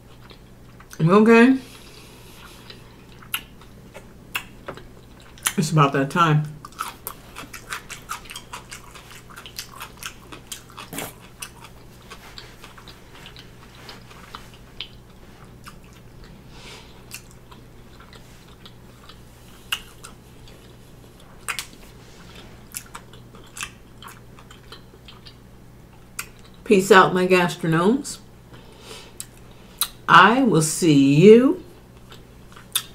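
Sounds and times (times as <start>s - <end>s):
faint steady hum: 0.0s - 32.9s
mouth chewing a crunchy chip: 2.3s - 5.6s, 6.6s - 26.6s.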